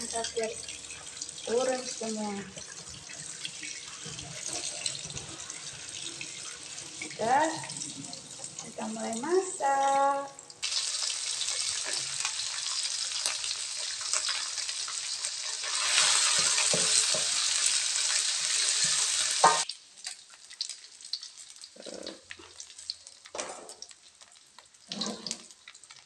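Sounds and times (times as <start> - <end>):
oil sizzling in a wok: 0.0 - 26.0
wooden spoon scraping a pan: 15.4 - 17.4.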